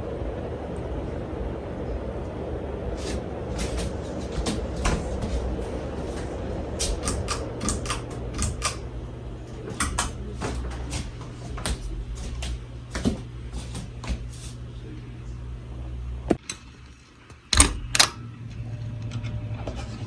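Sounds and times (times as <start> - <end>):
ceiling fan motor hum: 0.0 - 20.0
sharp clicks and knocks: 6.8 - 8.9, 9.8 - 10.2, 16.3 - 18.2.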